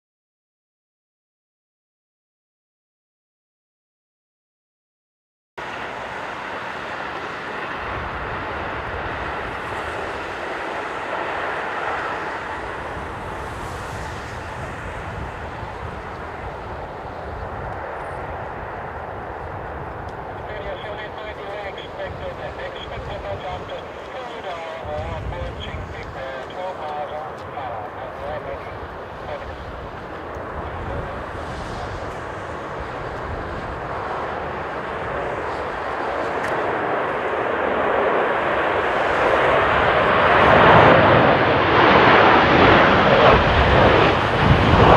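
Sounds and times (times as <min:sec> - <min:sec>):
jet engines roaring: 0:05.6 - 0:44.9
wind buffeting microphone: 0:06.0 - 0:37.9, 0:42.3 - 0:44.9.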